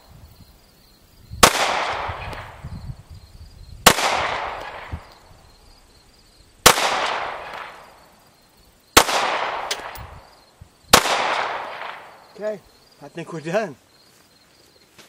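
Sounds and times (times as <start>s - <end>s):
pistol shots echoing: 1.4s - 2.6s, 3.8s - 5.1s, 6.6s - 8.0s, 9.0s - 10.2s, 10.9s - 12.3s.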